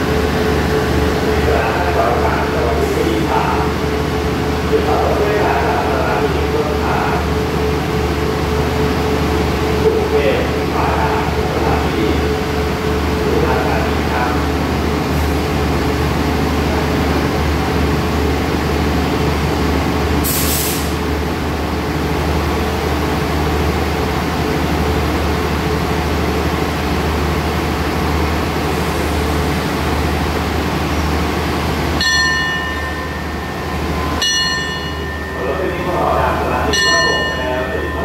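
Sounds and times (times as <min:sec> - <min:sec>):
diesel train idling: 0:00.0 - 0:38.0
air hiss: 0:20.2 - 0:21.0
bell struck: 0:32.0 - 0:38.0.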